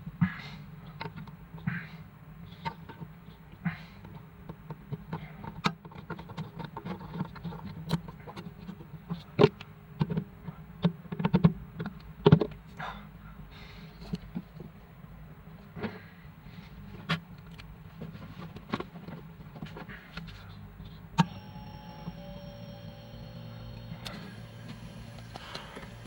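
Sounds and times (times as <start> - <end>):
steady low hum: 19.8 - 26.0.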